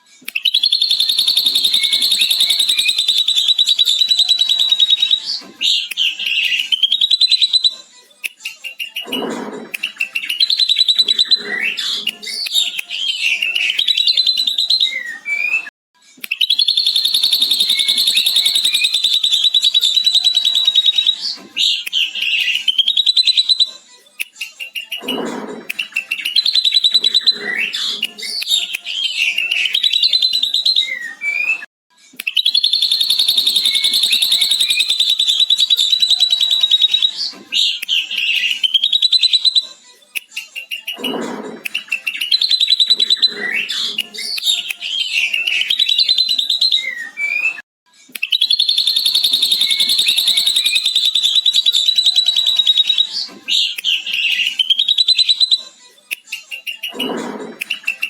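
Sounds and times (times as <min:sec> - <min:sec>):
bird squeaky whistled notes: 0:00.4 - 0:07.8, 0:16.4 - 0:23.8, 0:25.8 - 0:31.6, 0:32.3 - 0:39.7, 0:48.3 - 0:55.7.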